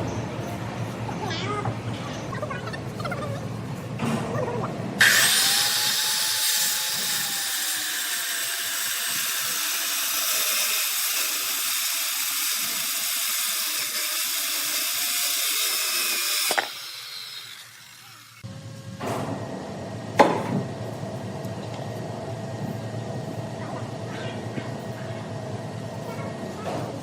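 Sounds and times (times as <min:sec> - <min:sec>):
power tool cutting wood: 0:05.0 - 0:18.5.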